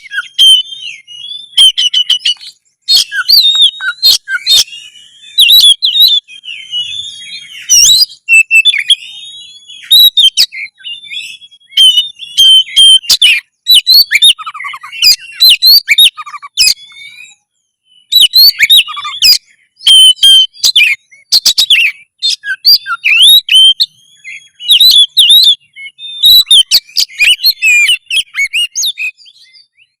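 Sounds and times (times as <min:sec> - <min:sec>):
bird singing varied song: 0:00.0 - 0:30.0.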